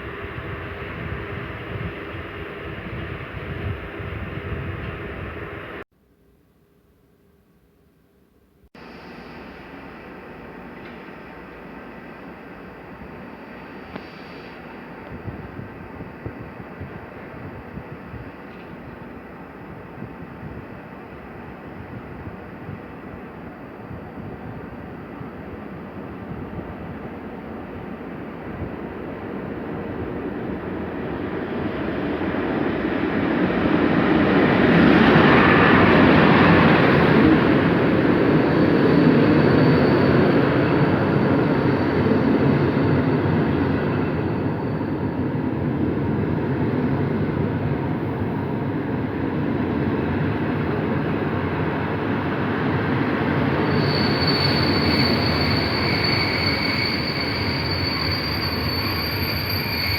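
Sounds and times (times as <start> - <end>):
train rumble: 8.8 - 59.9
high wheel squeal: 35.2 - 45.3, 53.4 - 59.9.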